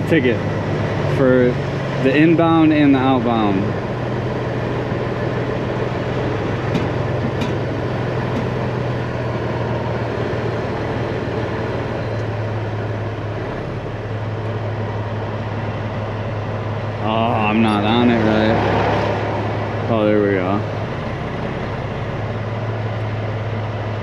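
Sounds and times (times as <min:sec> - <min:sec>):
truck diesel engine idling: 0:00.0 - 0:24.0.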